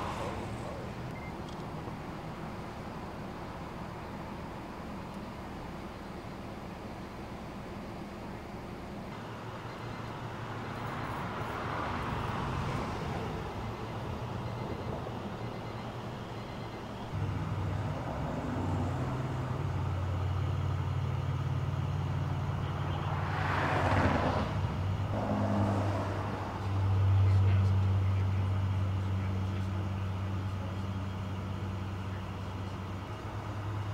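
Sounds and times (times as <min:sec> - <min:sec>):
vehicles whooshing by: 0:00.0 - 0:02.6, 0:09.2 - 0:32.0
low engine drone: 0:00.0 - 0:33.9.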